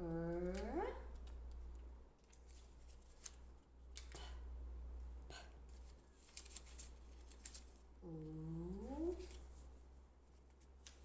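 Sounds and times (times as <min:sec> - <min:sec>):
low steady hum: 0:00.0 - 0:11.0
cards clicking and rustling: 0:00.4 - 0:04.3, 0:05.7 - 0:07.8.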